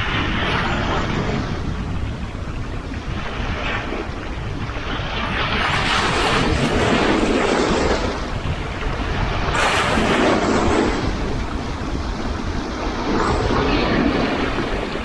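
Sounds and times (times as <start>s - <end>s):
sea waves breaking on shore: 0.0s - 15.0s
wind rumble on microphone: 0.0s - 15.0s.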